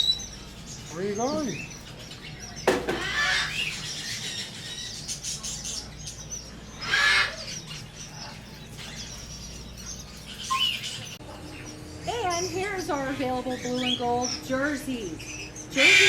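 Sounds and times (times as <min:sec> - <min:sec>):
parrots chirping and calling: 0:00.0 - 0:16.0
parrot squawk: 0:02.7 - 0:05.0, 0:06.7 - 0:08.4, 0:15.2 - 0:16.0.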